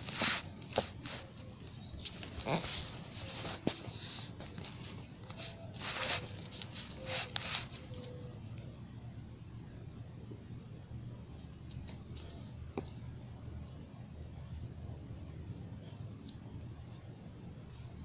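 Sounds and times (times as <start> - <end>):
rustling and rubbing: 0.0 - 8.6.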